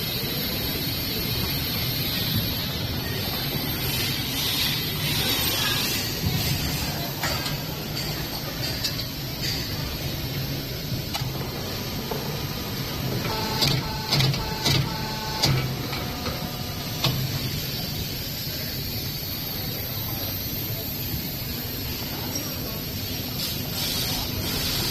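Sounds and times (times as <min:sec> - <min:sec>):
steady machine hum: 0:10.1 - 0:24.9.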